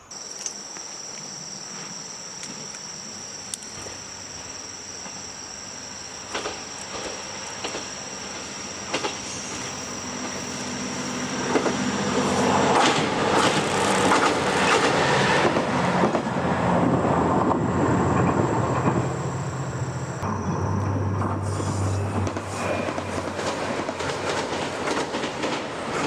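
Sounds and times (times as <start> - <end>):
locomotive engine drone: 0.0 - 24.6
train wheels clattering on rail: 6.2 - 10.6, 11.3 - 19.2, 20.8 - 26.0.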